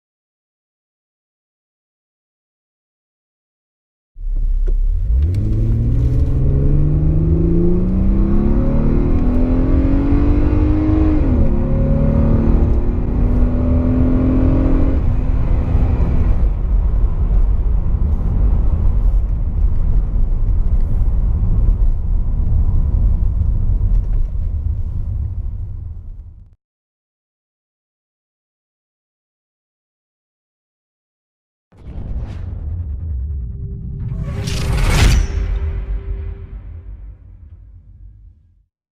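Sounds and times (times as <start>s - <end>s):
car engine accelerating: 4.2s - 25.9s
road and wind rumble: 4.2s - 26.5s.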